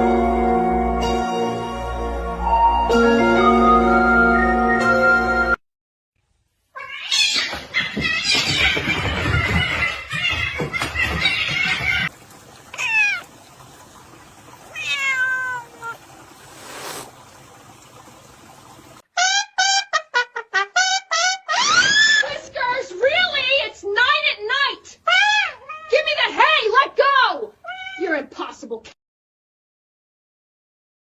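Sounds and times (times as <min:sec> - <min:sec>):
cat meowing: 0:06.8 - 0:07.5, 0:12.8 - 0:13.3, 0:14.7 - 0:16.0, 0:27.6 - 0:28.1.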